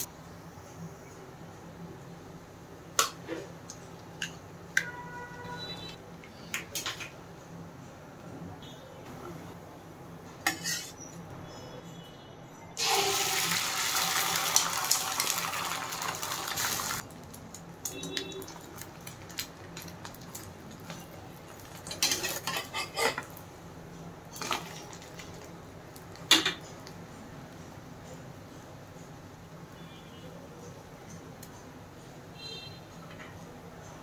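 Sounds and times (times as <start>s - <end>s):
spatula scraping and clattering: 10.4s - 11.1s, 21.7s - 23.3s
food sizzling in hot oil: 12.8s - 17.0s.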